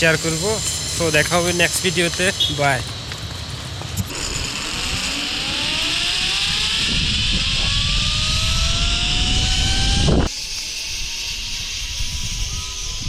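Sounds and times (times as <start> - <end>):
road and wind noise: 0.0 - 10.3
vehicle engine accelerating: 4.0 - 10.3.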